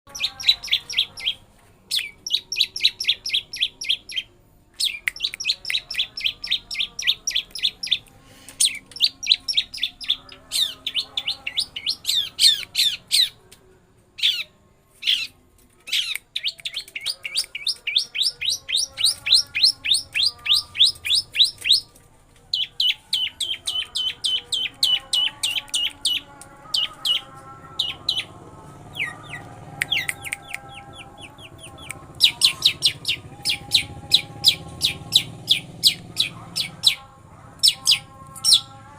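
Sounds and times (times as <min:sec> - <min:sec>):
bird singing rapid rolling trills: 0:00.1 - 0:08.0, 0:08.6 - 0:13.4, 0:15.9 - 0:38.9.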